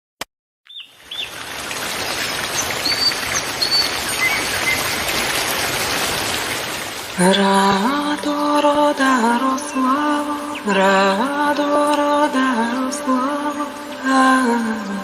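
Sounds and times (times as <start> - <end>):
small birds chirping: 0.7 - 5.3
running water rushing: 0.7 - 15.0.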